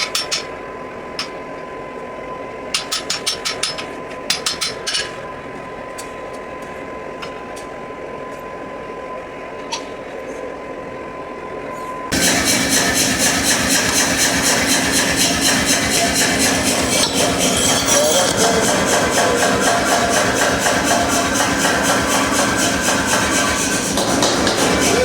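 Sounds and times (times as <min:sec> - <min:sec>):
steady high tone: 0:11.2 - 0:23.9
hammer striking steel anvil: 0:12.1 - 0:25.0
loud steady noise: 0:12.1 - 0:25.0.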